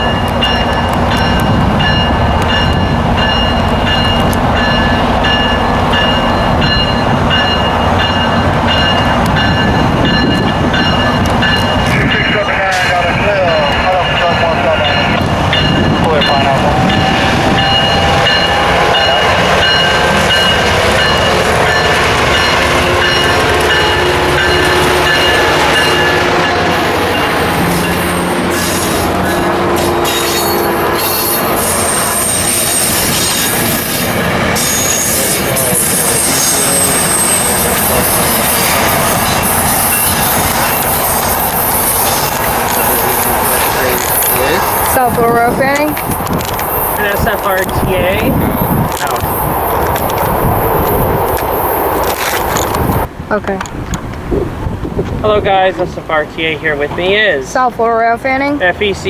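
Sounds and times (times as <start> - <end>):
bell ringing: 0.0 - 46.0
train wheels rumbling on rail: 0.0 - 59.0.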